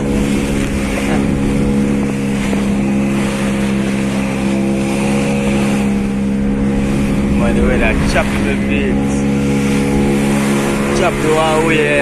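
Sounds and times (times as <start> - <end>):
motorboat engine running: 0.0 - 12.0
wind and water rushing: 0.0 - 12.0.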